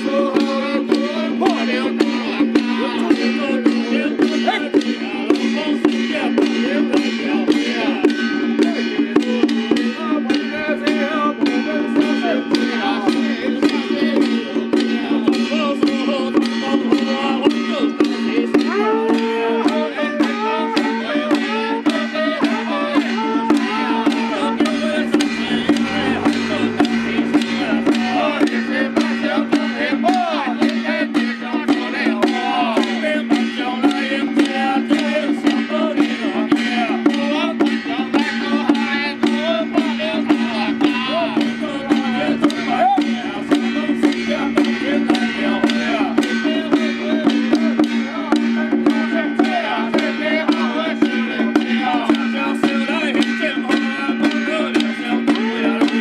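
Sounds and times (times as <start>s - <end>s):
percussion strokes: 0.0s - 56.0s
ornamented melody over drone: 23.1s - 29.6s, 39.0s - 47.0s.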